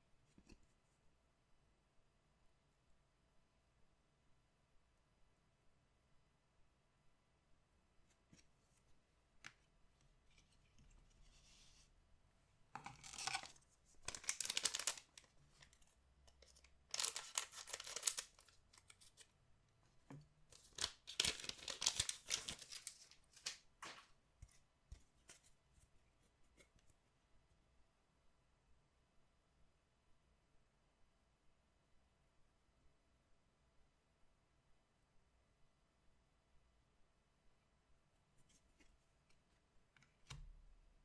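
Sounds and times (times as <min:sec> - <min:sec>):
wrappers tearing and crinkling: 0:13.0 - 0:13.5, 0:14.1 - 0:15.3, 0:16.9 - 0:18.6, 0:20.6 - 0:24.0.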